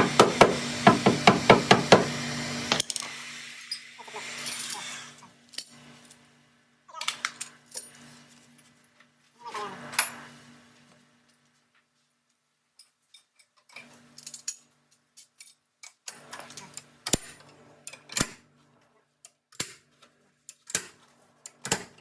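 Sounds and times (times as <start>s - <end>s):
knocks and clicks of hand work: 0.0s - 2.1s.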